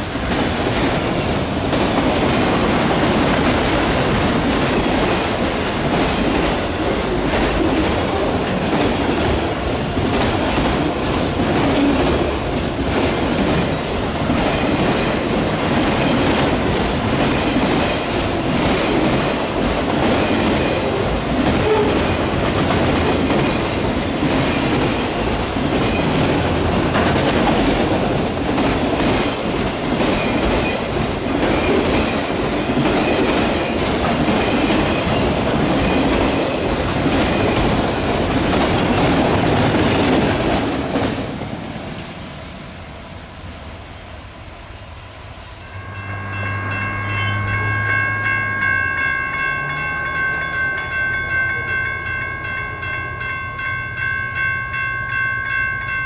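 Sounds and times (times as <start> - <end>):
freight train wheels clicking: 0.0 - 42.2
chord of high tones: 45.6 - 56.0.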